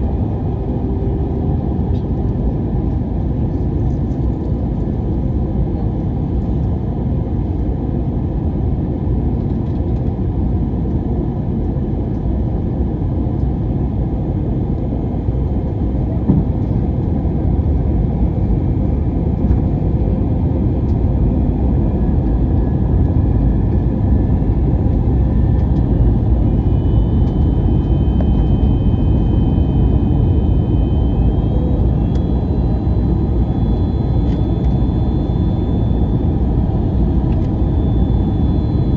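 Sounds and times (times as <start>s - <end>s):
airplane cabin engine rumble: 0.0s - 38.9s
faint high whining tones: 22.3s - 38.9s.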